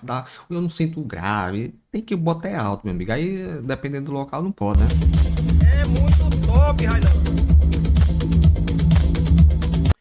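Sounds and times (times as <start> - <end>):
electronic dance music: 4.8 - 10.0.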